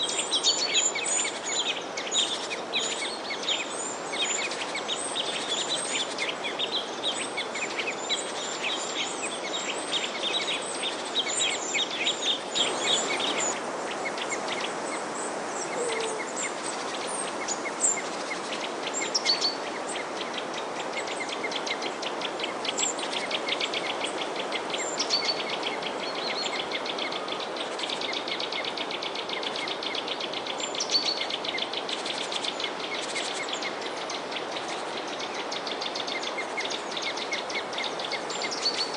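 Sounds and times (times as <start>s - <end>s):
small birds chirping: 0.0s - 38.9s
steady rushing noise: 11.9s - 15.8s.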